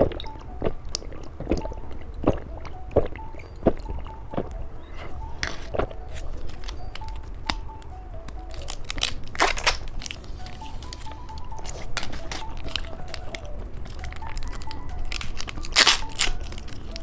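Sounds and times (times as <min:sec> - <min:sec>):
soft background music: 0:00.0 - 0:17.0
candy wrappers crinkling and tearing: 0:05.4 - 0:07.6, 0:08.3 - 0:17.0.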